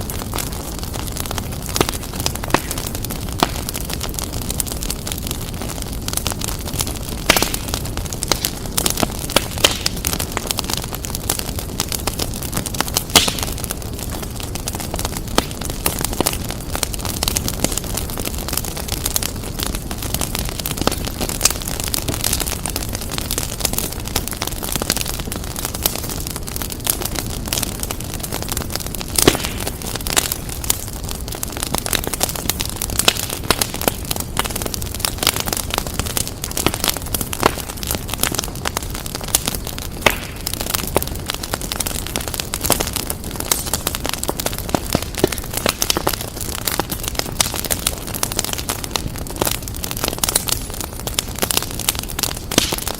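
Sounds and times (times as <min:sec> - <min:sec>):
fire crackling and popping: 0:00.0 - 0:52.9
low rumble of flame: 0:00.0 - 0:52.9.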